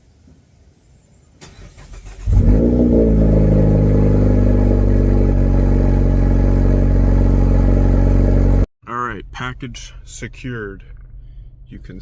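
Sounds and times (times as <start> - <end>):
car starter cranking: 1.4 - 3.0.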